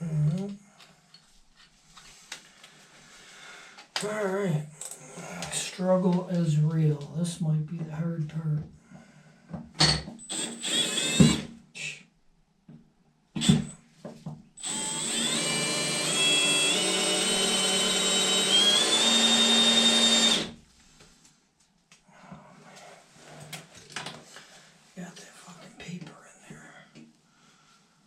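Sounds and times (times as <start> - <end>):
power drill drilling: 10.3 - 11.5, 14.6 - 20.6.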